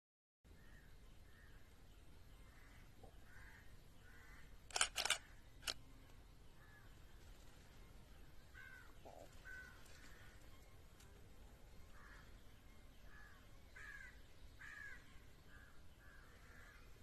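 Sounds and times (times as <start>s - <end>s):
sharp clicks: 4.7s - 5.8s
faint bird calls: 8.5s - 10.7s, 13.0s - 17.0s.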